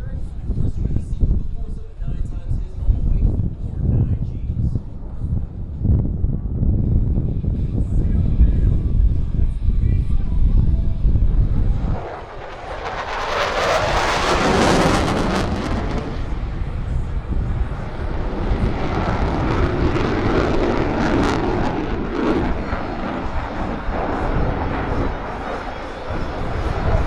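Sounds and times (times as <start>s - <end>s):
jet engine roaring: 2.3s - 27.0s.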